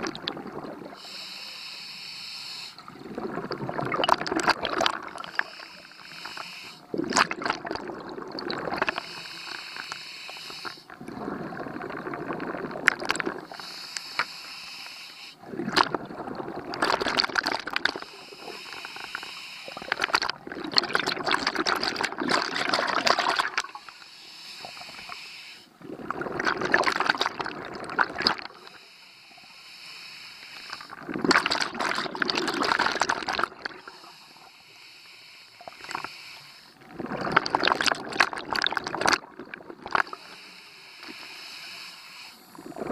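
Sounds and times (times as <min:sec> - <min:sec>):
bubbling exhale: 0:00.0 - 0:28.9, 0:29.8 - 0:42.9
regulator hissing inhale: 0:01.0 - 0:02.9, 0:05.2 - 0:06.9, 0:08.8 - 0:10.9, 0:13.4 - 0:15.4, 0:17.9 - 0:20.0, 0:23.6 - 0:25.8, 0:28.6 - 0:31.0, 0:33.8 - 0:36.8, 0:40.0 - 0:42.9.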